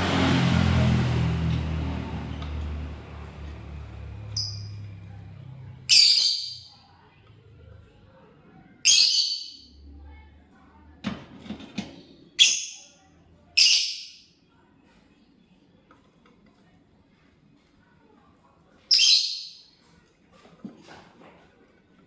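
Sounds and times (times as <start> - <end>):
lovebird harsh shrill calls: 4.4 - 4.8, 5.9 - 6.7, 12.4 - 12.9, 18.9 - 19.6
faint bird chirp: 18.9 - 19.8.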